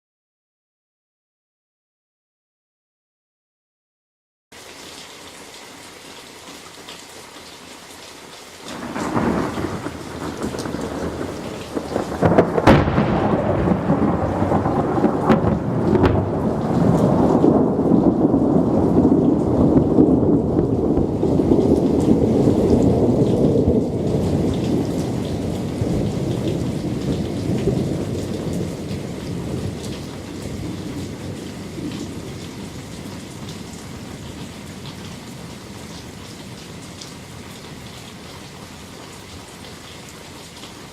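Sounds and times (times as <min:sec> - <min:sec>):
steady rain: 0:04.5 - 0:40.9
thunder rumble and crack: 0:08.7 - 0:36.9.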